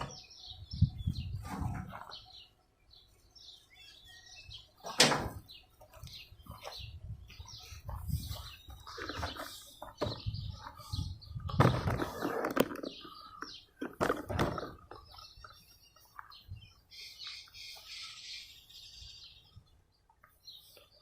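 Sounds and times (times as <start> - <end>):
small birds chirping: 0.0 - 21.0
knocks and handling noise: 11.4 - 15.6.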